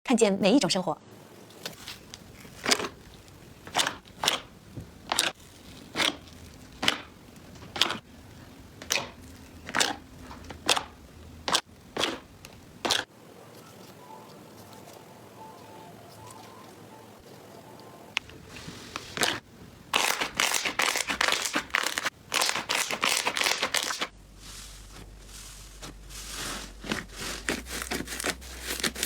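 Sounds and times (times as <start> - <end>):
slime crackling pops: 5.1 - 7.1.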